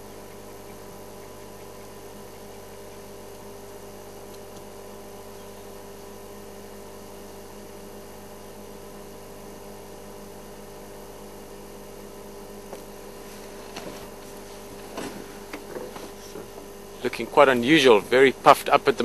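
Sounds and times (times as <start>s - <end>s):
steady hum with fixed tones: 0.0s - 19.0s.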